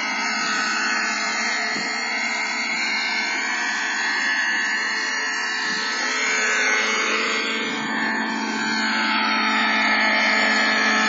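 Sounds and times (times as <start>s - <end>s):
model glow engine running: 0.0s - 11.0s.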